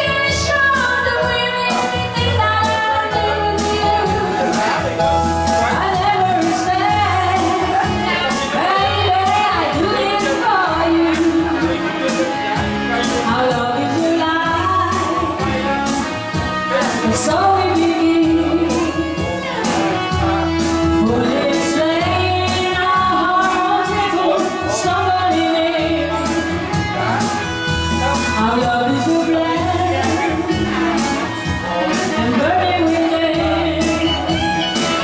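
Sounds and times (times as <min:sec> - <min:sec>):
band with drum beat and bass: 0:00.0 - 0:35.0
woman singing pop-rock song: 0:00.0 - 0:35.0.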